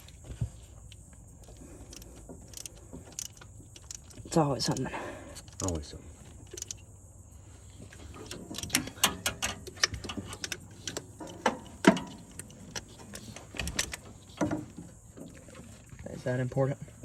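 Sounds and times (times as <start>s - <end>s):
tools clicking and knocking: 1.4s - 5.8s, 6.4s - 6.8s, 8.0s - 14.8s.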